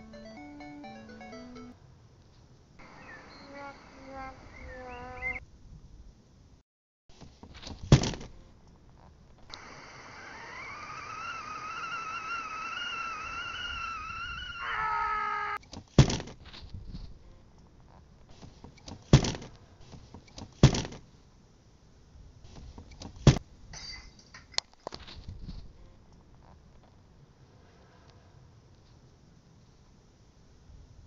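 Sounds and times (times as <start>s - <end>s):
brief steady chord: 0.0s - 1.8s
rising wavering whine: 2.8s - 5.4s, 9.6s - 14.8s
loud sharp thuds: 7.3s - 8.3s, 15.8s - 16.4s, 20.4s - 21.0s, 23.0s - 23.4s.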